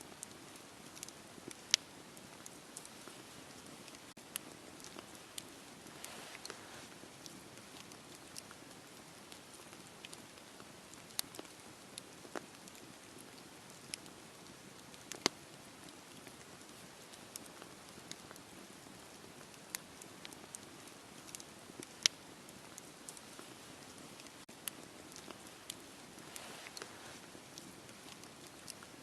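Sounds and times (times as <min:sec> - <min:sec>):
fire crackles and pops: 0:00.0 - 0:29.0
wood fire hissing: 0:00.0 - 0:29.0.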